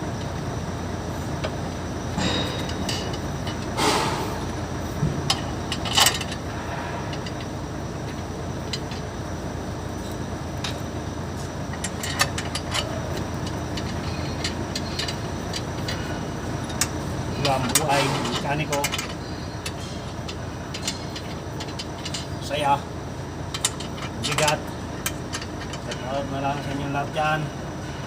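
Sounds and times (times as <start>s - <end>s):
low rumble of traffic: 0.0s - 28.0s.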